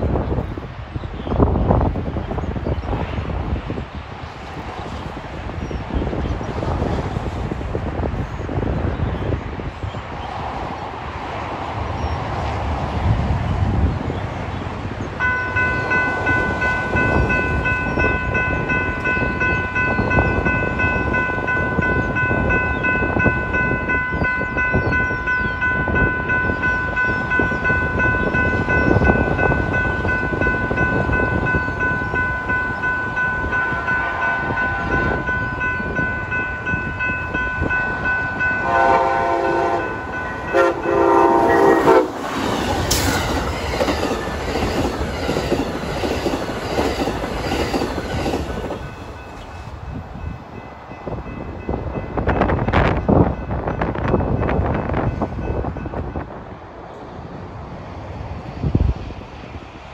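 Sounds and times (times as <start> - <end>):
rushing wind noise: 0.0 - 59.9
train passing with wheel clatter: 0.0 - 59.9
railroad crossing bell ringing: 15.2 - 56.4
locomotive horn blasts: 33.7 - 35.3, 38.4 - 42.2.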